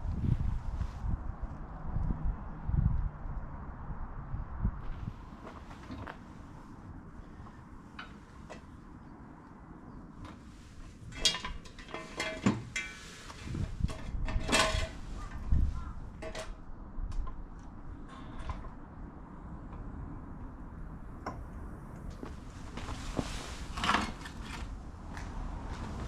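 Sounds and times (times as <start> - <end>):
metal tools clinking: 11.1 - 13.1
rustling handling noise: 22.2 - 26.0.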